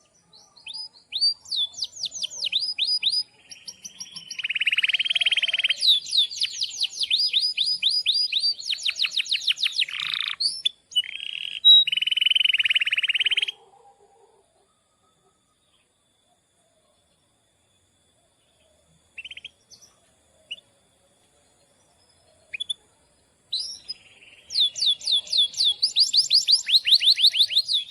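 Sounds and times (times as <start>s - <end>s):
canary singing: 0.0s - 13.6s, 23.5s - 27.9s.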